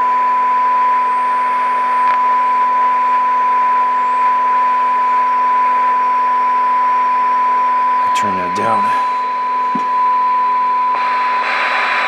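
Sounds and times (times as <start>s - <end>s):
radio test tone: 8.0s - 12.0s
static hiss: 11.0s - 12.0s.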